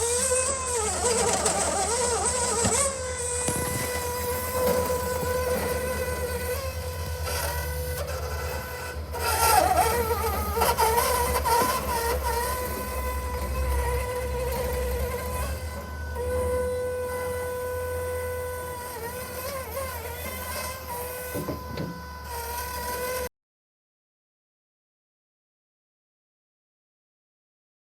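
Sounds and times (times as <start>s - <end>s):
electric motor whine: 0.0s - 23.3s
knocks: 21.3s - 22.0s.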